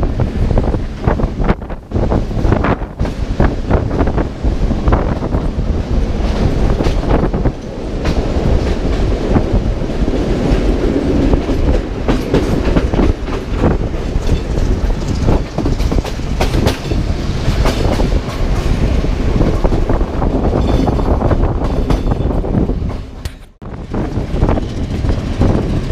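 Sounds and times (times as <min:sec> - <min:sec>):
train rumbling at speed: 0:00.0 - 0:25.9
wheels clicking over rail joints: 0:06.1 - 0:23.6.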